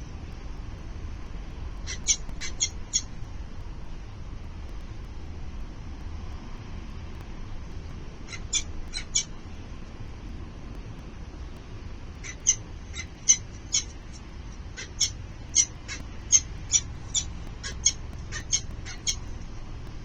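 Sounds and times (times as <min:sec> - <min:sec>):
low steady background hum: 0:00.0 - 0:20.0
falcon chicks begging calls: 0:01.9 - 0:03.1, 0:08.3 - 0:09.3, 0:12.2 - 0:19.3.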